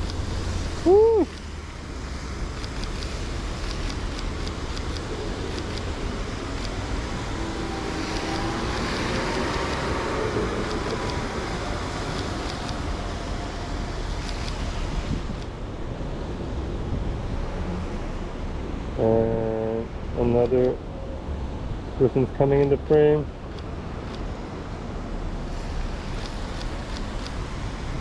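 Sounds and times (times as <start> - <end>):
tyres hissing on wet road: 0.0 - 15.3, 24.3 - 28.0
rain: 0.0 - 16.7, 23.7 - 28.0
traffic on wet street: 0.0 - 28.0.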